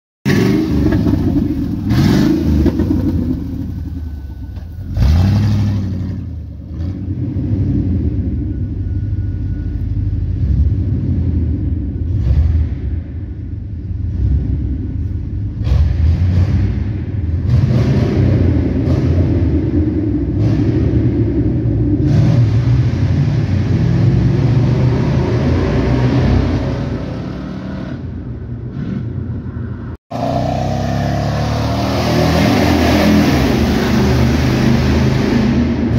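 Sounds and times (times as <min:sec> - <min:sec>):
open exhaust engine revving: 0:00.3 - 0:08.8
loud engine exhaust accelerating: 0:00.3 - 0:35.9.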